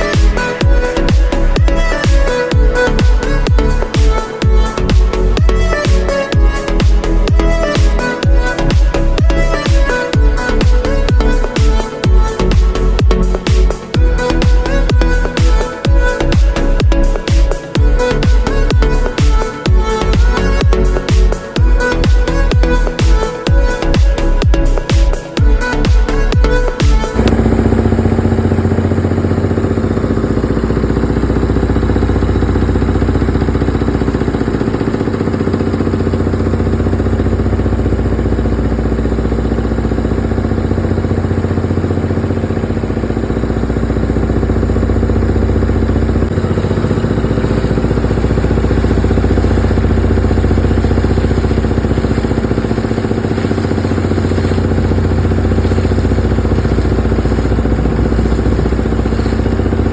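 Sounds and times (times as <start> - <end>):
drilling rig engine rumbling: 0.0 - 59.9.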